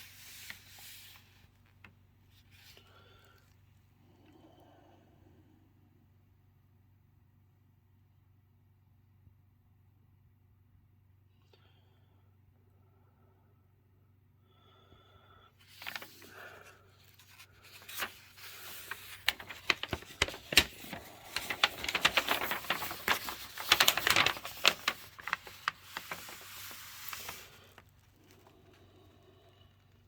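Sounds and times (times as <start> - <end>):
packing materials rustling: 15.6 - 28.8.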